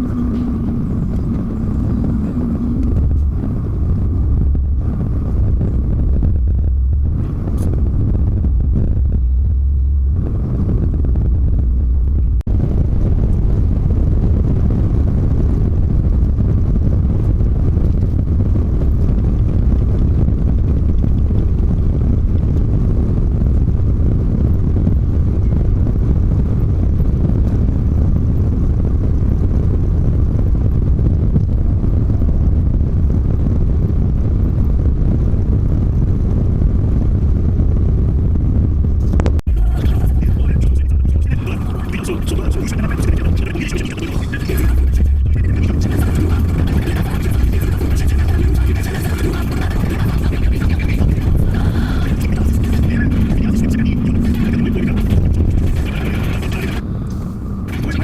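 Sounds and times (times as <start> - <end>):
road noise: 0.0 - 24.9, 39.0 - 58.0
truck engine rumble: 0.0 - 58.0.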